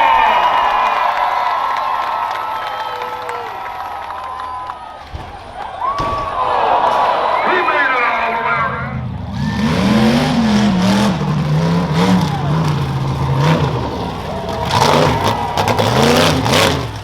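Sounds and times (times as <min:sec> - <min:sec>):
truck engine revving: 0:07.5 - 0:17.0.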